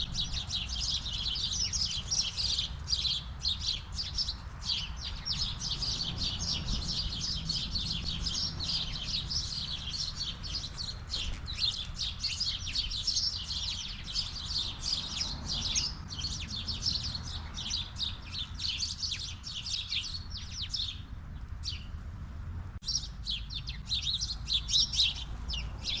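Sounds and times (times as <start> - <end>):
sparrows chirping: 0.0 - 22.0, 22.8 - 26.0.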